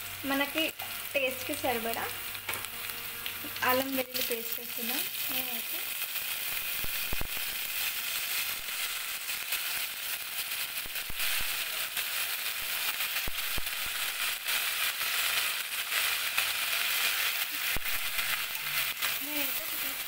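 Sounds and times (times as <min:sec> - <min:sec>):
oil sizzling in a pot: 0:00.0 - 0:20.0
crackling pops: 0:01.8 - 0:07.8, 0:10.8 - 0:12.0, 0:12.6 - 0:14.4.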